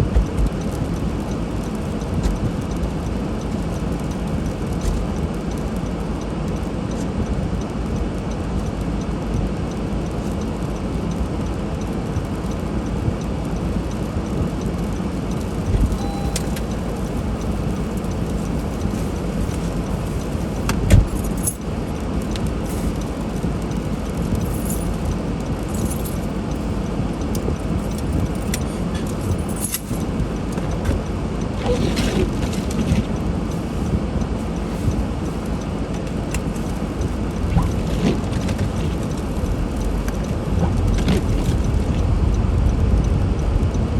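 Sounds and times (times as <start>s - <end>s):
car driving through snow: 0.0s - 43.9s
light clicks and rattles: 9.4s - 42.4s.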